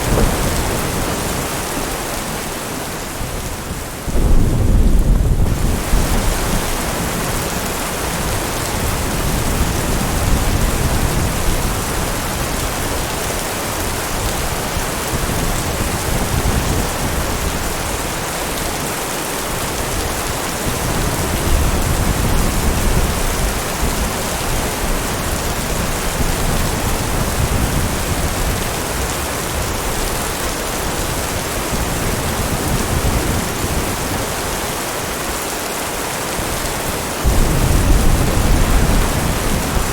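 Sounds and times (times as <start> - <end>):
low thunder rumbling: 0.0 - 2.5, 3.2 - 13.1, 37.2 - 39.9
heavy rain: 0.0 - 39.9.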